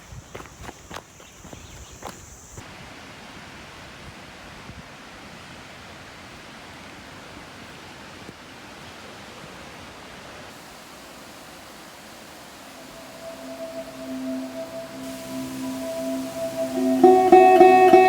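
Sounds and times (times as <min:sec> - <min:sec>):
steady rushing noise: 0:11.2 - 0:18.0.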